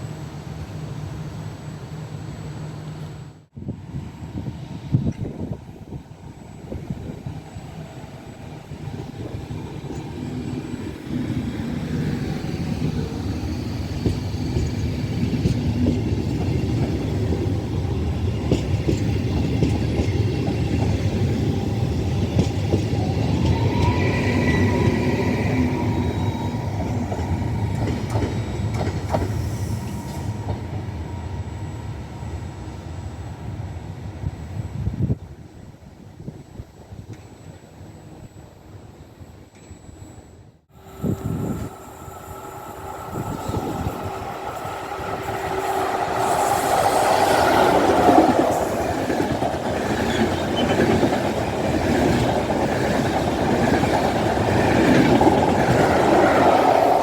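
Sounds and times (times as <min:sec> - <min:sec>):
train wagons rumbling: 0:08.6 - 0:31.0, 0:40.9 - 0:57.0.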